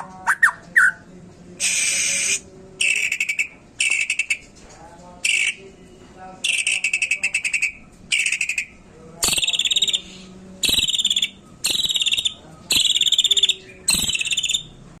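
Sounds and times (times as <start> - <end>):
bird singing pulsed trills: 6.5 - 14.8.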